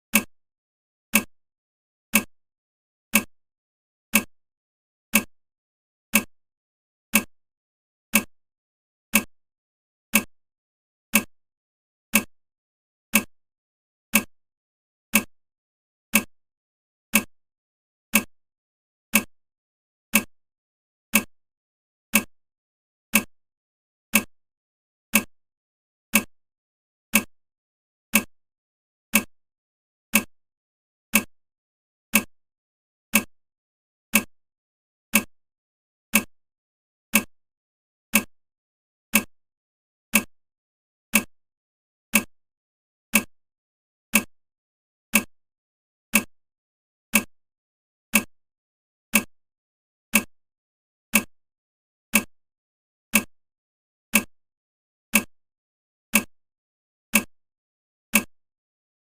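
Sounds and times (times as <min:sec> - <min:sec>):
clock ticking: 0:00.1 - 0:00.3, 0:01.1 - 0:01.3, 0:02.1 - 0:02.3, 0:03.1 - 0:03.3, 0:04.1 - 0:04.3, 0:05.1 - 0:05.3, 0:06.1 - 0:06.3, 0:07.1 - 0:07.3, 0:08.1 - 0:08.3, 0:09.1 - 0:09.3, 0:10.1 - 0:10.3, 0:11.1 - 0:11.3, 0:12.1 - 0:12.3, 0:13.1 - 0:13.3, 0:14.1 - 0:14.3, 0:15.1 - 0:15.3, 0:16.1 - 0:16.3, 0:17.1 - 0:17.3, 0:18.1 - 0:18.3, 0:19.1 - 0:19.3, 0:20.1 - 0:20.3, 0:21.1 - 0:21.3, 0:22.1 - 0:22.3, 0:23.1 - 0:23.3, 0:24.1 - 0:24.3, 0:25.1 - 0:25.3, 0:26.1 - 0:26.3, 0:27.1 - 0:27.3, 0:28.1 - 0:28.3, 0:29.1 - 0:29.3, 0:30.1 - 0:30.3, 0:31.1 - 0:31.3, 0:32.1 - 0:32.3, 0:33.1 - 0:33.3, 0:34.1 - 0:34.3, 0:35.1 - 0:35.3, 0:36.1 - 0:36.3, 0:37.1 - 0:37.3, 0:38.1 - 0:38.3, 0:39.1 - 0:39.3, 0:40.1 - 0:40.3, 0:41.1 - 0:41.3, 0:42.1 - 0:42.3, 0:43.1 - 0:43.3, 0:44.1 - 0:44.3, 0:45.1 - 0:45.3, 0:46.1 - 0:46.3, 0:47.1 - 0:47.3, 0:48.1 - 0:48.3, 0:51.1 - 0:51.3, 0:52.1 - 0:52.3, 0:53.1 - 0:53.3, 0:54.1 - 0:54.3.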